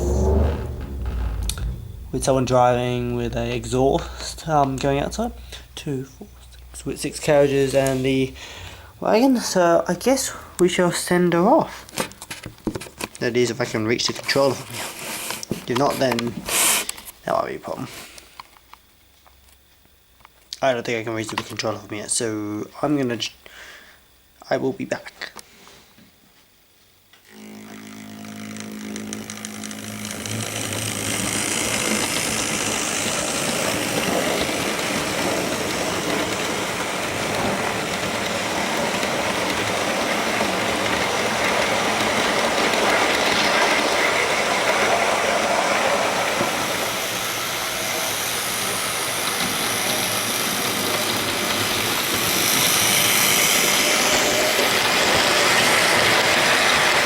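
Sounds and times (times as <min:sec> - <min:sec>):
motor whine: 0:00.0 - 0:05.3, 0:27.2 - 0:57.0
model train wheels on track: 0:00.0 - 0:18.5, 0:27.2 - 0:57.0.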